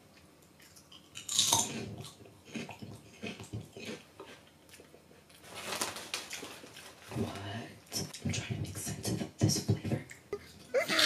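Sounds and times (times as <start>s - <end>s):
crunchy chip chewing: 0.6s - 5.4s.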